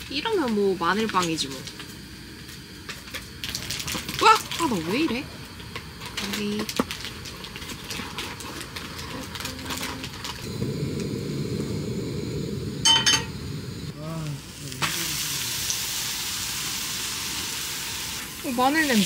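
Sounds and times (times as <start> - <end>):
butter sizzling in a frying pan: 5.8 - 19.0
metal clink: 12.9 - 13.3.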